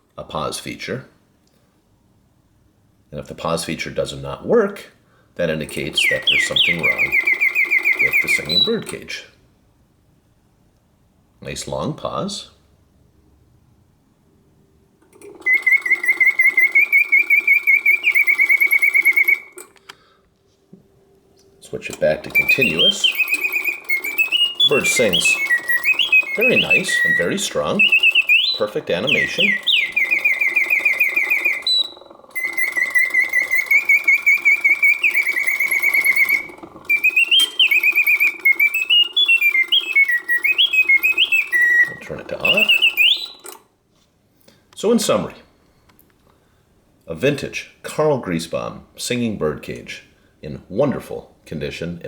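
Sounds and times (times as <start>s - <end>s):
mechanical bird whistle trilling: 5.7s - 9.1s, 15.2s - 19.9s, 21.6s - 43.6s.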